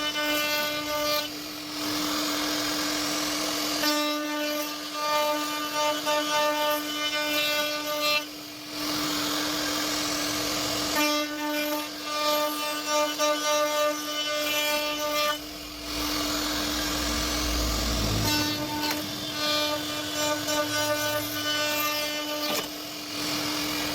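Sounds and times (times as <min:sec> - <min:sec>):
cnc router spindle whine: 0:00.0 - 0:23.9
router bit cutting wood: 0:00.0 - 0:23.9
low rumble: 0:15.4 - 0:21.7.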